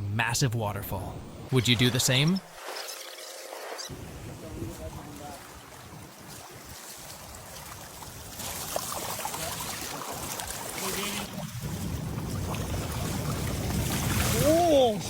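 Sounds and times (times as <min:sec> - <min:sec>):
water rushing through a channel: 0:03.5 - 0:15.0.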